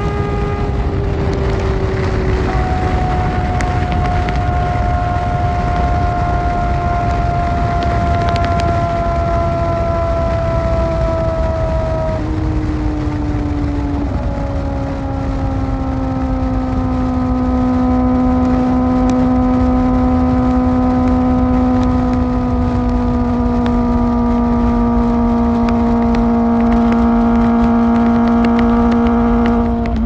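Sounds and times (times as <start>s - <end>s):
motorcycle engine at high revs: 0.0s - 30.0s
wind and road rush: 0.0s - 30.0s.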